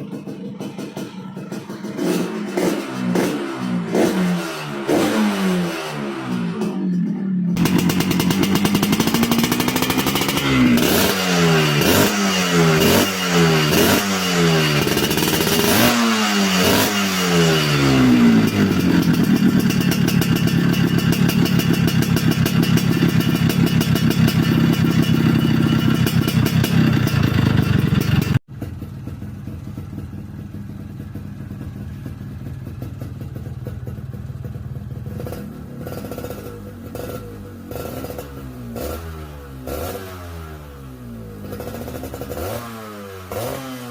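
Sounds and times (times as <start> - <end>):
two-stroke engine revving: 0.0 - 28.5, 35.0 - 43.9
engine idling: 6.6 - 15.9, 16.6 - 35.8.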